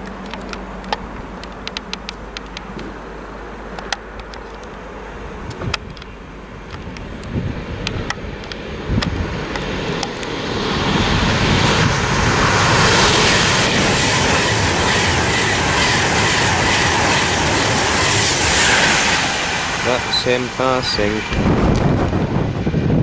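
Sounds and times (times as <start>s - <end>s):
sharp clicks: 0.0s - 2.8s
train rushing past: 7.4s - 23.0s.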